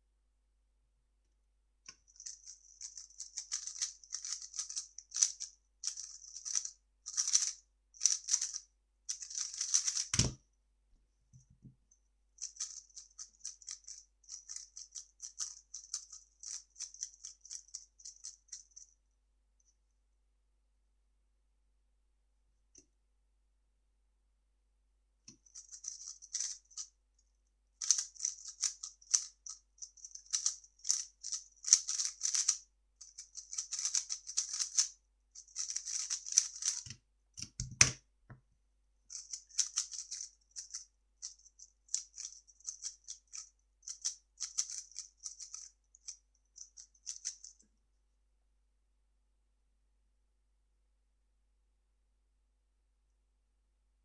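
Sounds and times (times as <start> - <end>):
puzzle cube clicking rattle: 2.0 - 10.4, 12.4 - 18.7, 25.4 - 26.9, 27.8 - 36.9, 39.1 - 47.5
thump: 10.2 - 10.4.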